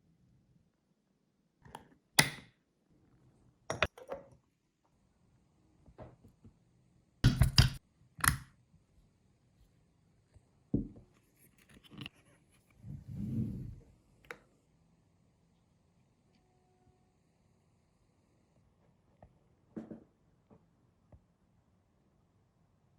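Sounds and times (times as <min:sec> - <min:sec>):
kitchen utensils and dishes knocking: 0:07.2 - 0:07.8.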